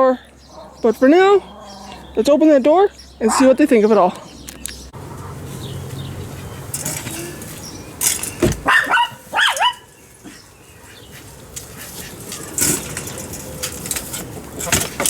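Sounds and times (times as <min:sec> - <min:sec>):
small dog barking: 0:03.3 - 0:03.6, 0:08.6 - 0:09.9.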